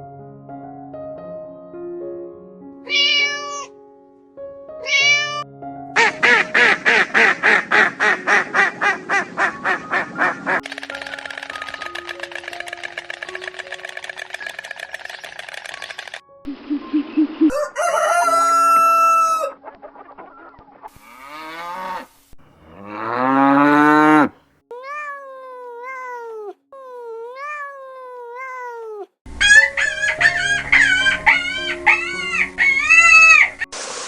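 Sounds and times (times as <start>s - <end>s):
chickens clucking: 16.5s - 21.4s, 29.4s - 33.5s
rooster crowing: 17.5s - 19.6s, 29.4s - 33.5s
wavering animal calls: 29.4s - 33.6s.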